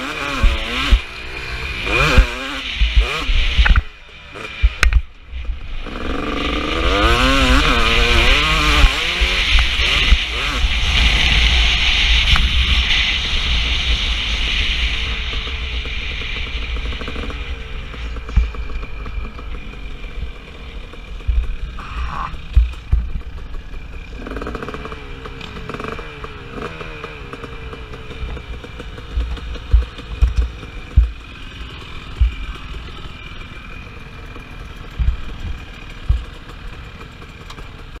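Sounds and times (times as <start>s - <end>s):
motocross bike engine revving: 0.0s - 38.0s
sharp low thumps: 21.2s - 23.2s, 29.1s - 31.2s, 35.0s - 36.3s.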